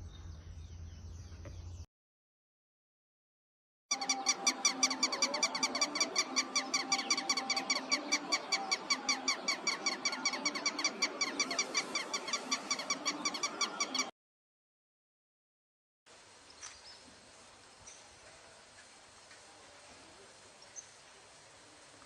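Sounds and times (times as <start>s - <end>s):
animal calling in squeaky notes: 3.9s - 14.1s.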